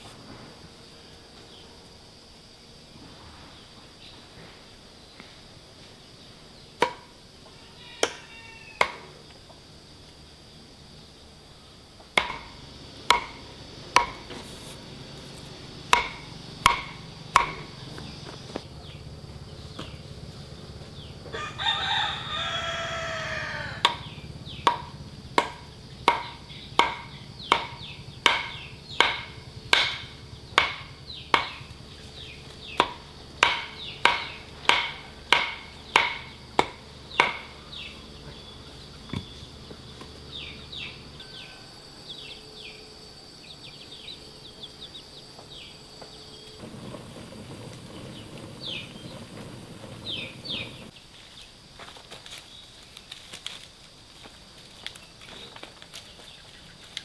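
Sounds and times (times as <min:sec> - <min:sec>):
sharp chopping strikes: 0:06.8 - 0:07.1, 0:12.2 - 0:14.7, 0:15.4 - 0:18.6, 0:23.8 - 0:31.8, 0:32.6 - 0:37.9
rooster crowing: 0:07.4 - 0:09.1, 0:21.0 - 0:24.6, 0:40.4 - 0:42.9
faint bird chirps: 0:40.3 - 0:46.6.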